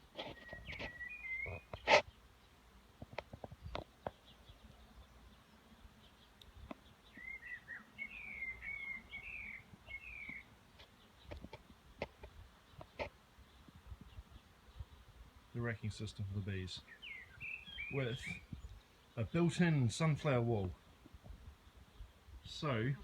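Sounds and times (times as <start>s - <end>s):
bird chirping: 0.0s - 2.6s, 3.3s - 20.8s
faint outdoor background: 0.0s - 23.0s
faint clicks: 6.4s - 6.8s.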